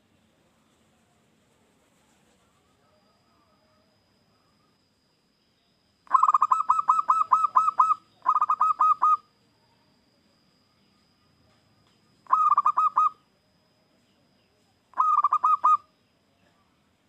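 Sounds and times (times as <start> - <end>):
dove cooing: 6.1 - 9.3, 12.3 - 13.2, 14.9 - 15.9.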